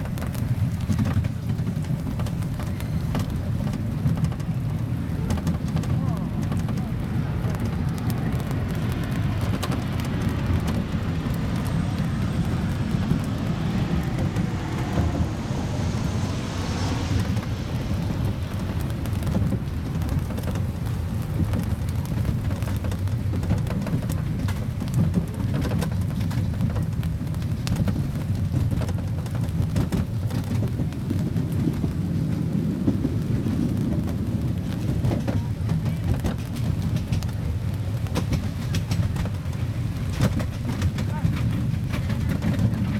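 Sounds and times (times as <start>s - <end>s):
faint clicking and rattling: 0.0s - 15.1s, 33.0s - 42.9s
small train rumbling: 0.0s - 42.9s.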